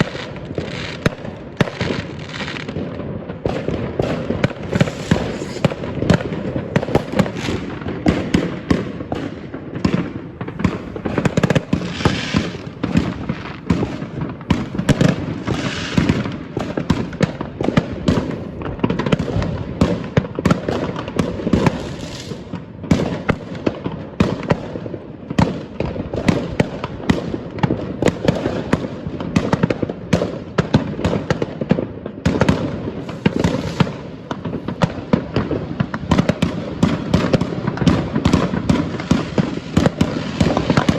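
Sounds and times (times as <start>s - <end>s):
fireworks bursting: 0.0s - 40.9s
sizzling crackle: 4.4s - 8.0s, 33.0s - 34.8s.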